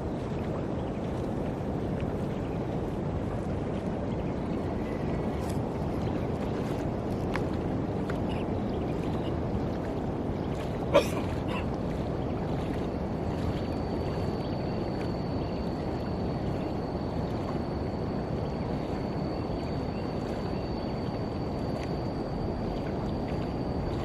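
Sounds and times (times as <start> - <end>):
shallow water sloshing: 4.9 - 24.0.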